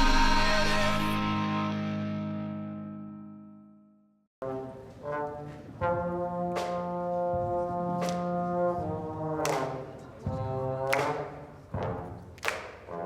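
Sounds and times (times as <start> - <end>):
brass ensemble playing chords: 4.4 - 12.1
percussion hits: 5.8 - 13.0.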